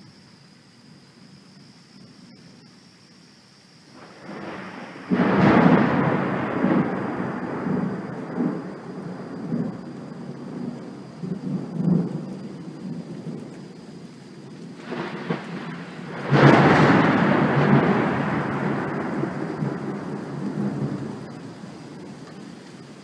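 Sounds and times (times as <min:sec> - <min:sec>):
rain falling: 0:00.0 - 0:23.0
thunder rumbling: 0:03.9 - 0:23.0
thunder crack: 0:04.0 - 0:13.4, 0:14.8 - 0:22.1.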